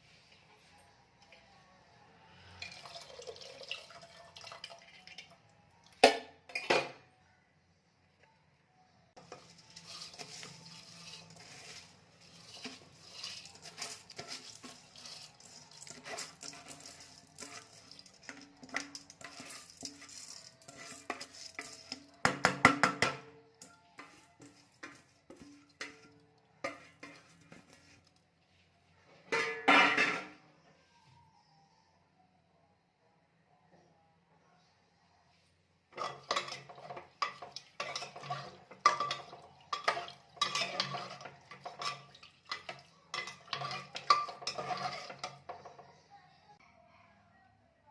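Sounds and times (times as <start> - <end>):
metal spoon scraping a pot: 9.2 - 23.2, 23.9 - 28.1, 29.3 - 30.4, 35.9 - 45.8.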